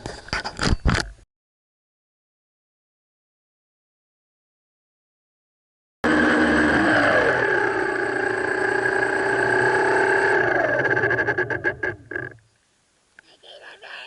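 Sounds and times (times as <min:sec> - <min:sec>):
drone motors and propellers whining: 0:06.0 - 0:12.4.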